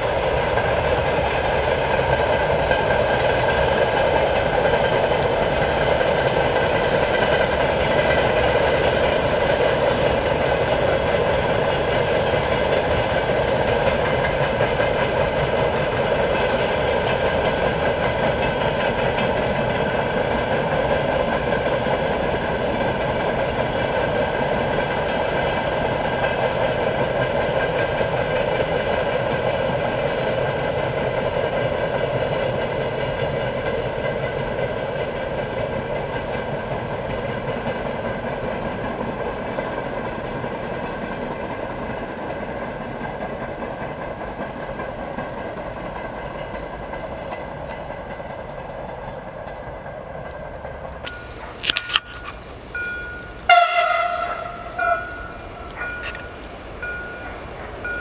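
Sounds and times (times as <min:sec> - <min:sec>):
train rumble: 0:00.0 - 0:58.0
steady humming tones: 0:50.5 - 0:58.0.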